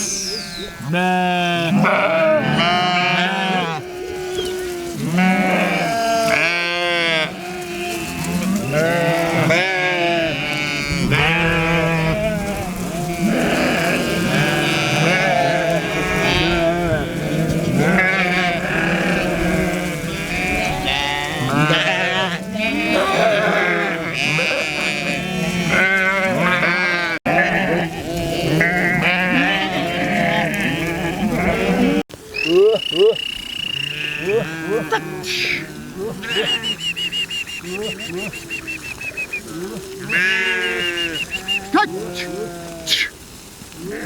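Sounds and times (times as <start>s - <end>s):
sheep bleating: 0.3s - 43.1s.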